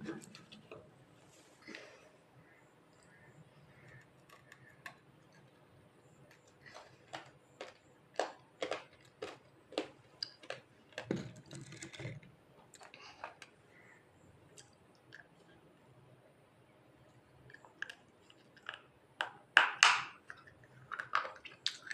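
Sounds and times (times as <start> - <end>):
teeth crunching dry clay: 3.8 - 5.7, 6.3 - 13.9, 17.4 - 21.9.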